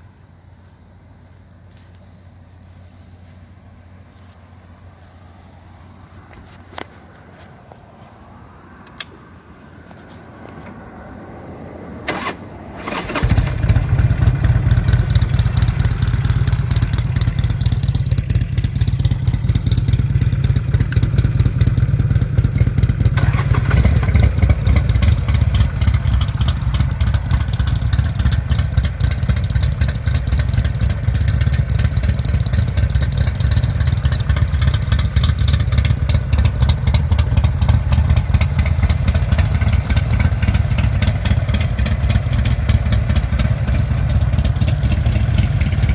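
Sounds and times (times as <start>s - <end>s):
motorcycle engine running: 12.1s - 45.9s.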